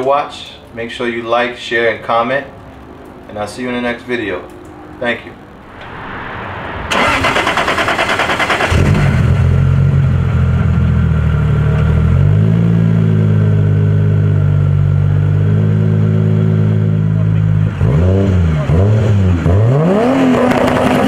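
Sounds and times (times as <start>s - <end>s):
starter cranking engine: 6.9s - 9.3s
car engine idling: 6.9s - 12.4s.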